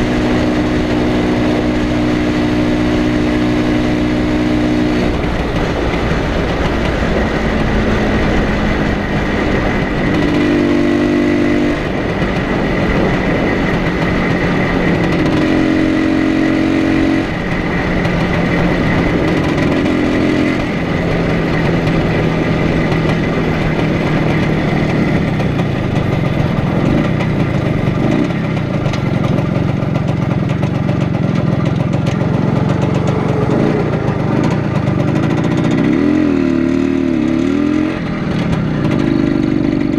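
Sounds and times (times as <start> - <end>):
riding noise rush: 0.0 - 39.9
two-stroke motorcycle engine: 0.0 - 39.9.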